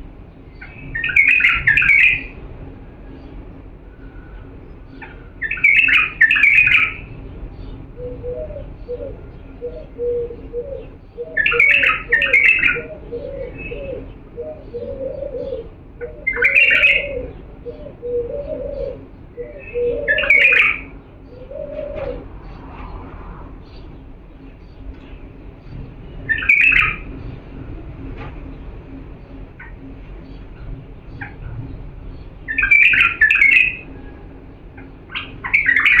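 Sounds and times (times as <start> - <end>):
bulbul singing: 4.4 - 22.6, 32.1 - 36.0.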